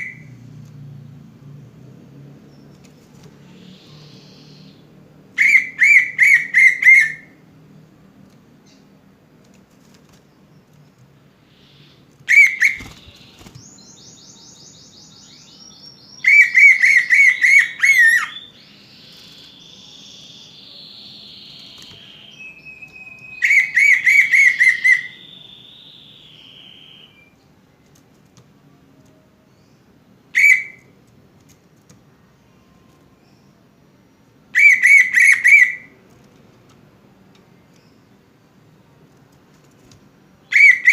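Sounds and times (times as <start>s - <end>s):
bird whistling song: 3.6s - 7.3s, 11.5s - 27.4s, 30.3s - 30.9s, 34.6s - 35.9s, 40.4s - 40.9s.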